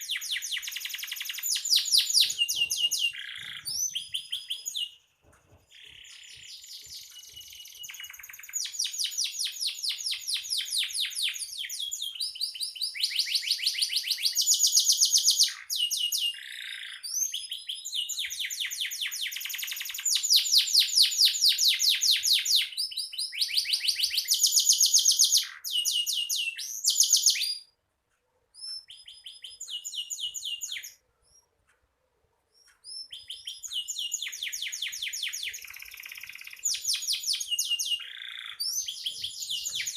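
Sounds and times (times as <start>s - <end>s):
canary singing trills: 0.0s - 5.1s, 5.7s - 27.8s, 28.5s - 31.6s, 32.5s - 39.9s.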